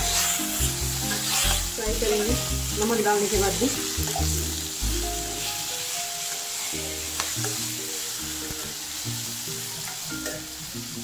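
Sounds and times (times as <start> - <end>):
spatula scraping a steel pan: 0.0 - 3.0
background music with held notes: 0.0 - 11.0
vegetables sizzling in hot oil: 0.0 - 11.0.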